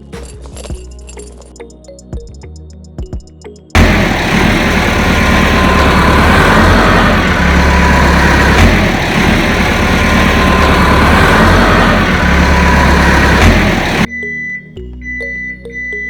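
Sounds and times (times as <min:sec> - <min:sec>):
engine idling loudly: 0:03.8 - 0:14.1.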